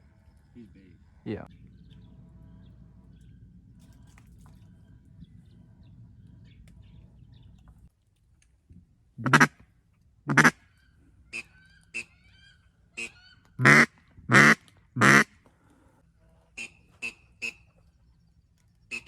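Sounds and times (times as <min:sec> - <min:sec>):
duck quacking: 0:09.2 - 0:09.5, 0:10.3 - 0:10.6, 0:11.3 - 0:12.2, 0:13.0 - 0:15.3, 0:16.6 - 0:17.6
high squeaky calls: 0:10.6 - 0:13.6.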